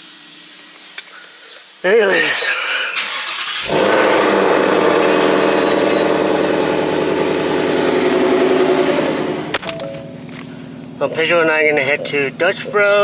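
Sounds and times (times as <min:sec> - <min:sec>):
car engine starting and idling: 0:03.0 - 0:13.0.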